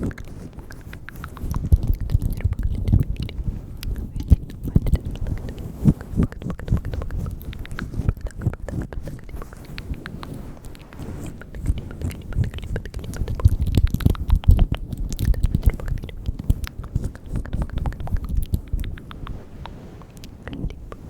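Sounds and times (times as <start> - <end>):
wet mouth clicks and smacks: 0.0 - 21.0
soft low thuds: 10.8 - 19.7.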